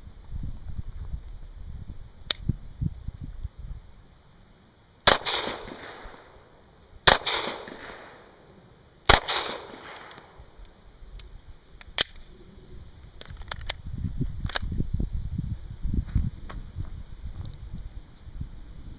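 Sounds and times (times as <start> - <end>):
sharp click: 2.3 - 2.5
pistol shots echoing: 5.1 - 6.4, 7.0 - 8.4, 9.1 - 10.4.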